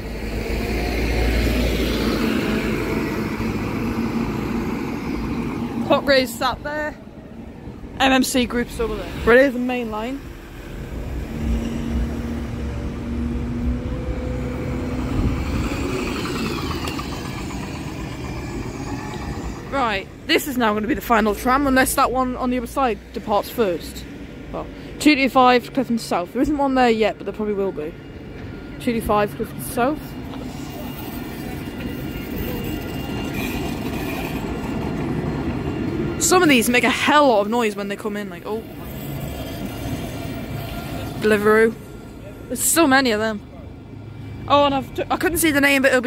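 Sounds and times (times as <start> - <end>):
tram rumble: 0.0 - 46.0
vehicle engine hum: 0.0 - 46.0
high wheel squeal: 14.2 - 20.2, 29.8 - 46.0.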